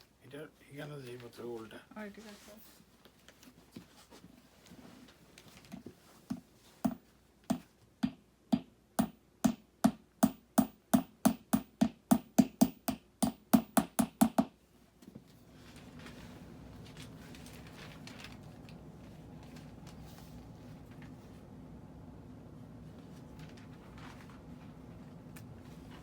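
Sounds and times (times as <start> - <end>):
hammer knocking on wood: 6.8 - 14.5.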